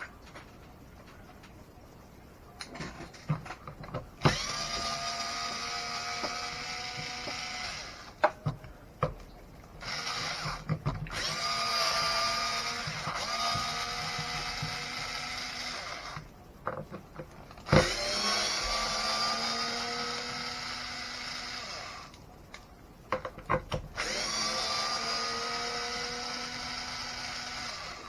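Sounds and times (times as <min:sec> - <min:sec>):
power screwdriver whining: 0:04.2 - 0:08.2, 0:09.8 - 0:16.3, 0:17.6 - 0:22.2, 0:24.0 - 0:28.0.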